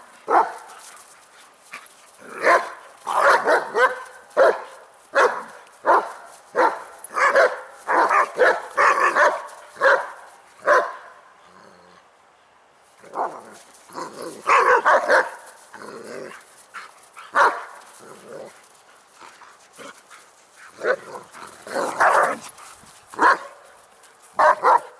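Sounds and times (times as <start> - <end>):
dogs barking: 0.3 - 0.8, 2.4 - 11.1, 14.4 - 15.6, 17.3 - 17.9, 20.8 - 22.6, 23.2 - 23.7, 24.4 - 24.9
dogs growling: 11.4 - 12.0, 13.1 - 14.5, 15.7 - 16.5, 17.8 - 20.0, 20.6 - 22.9.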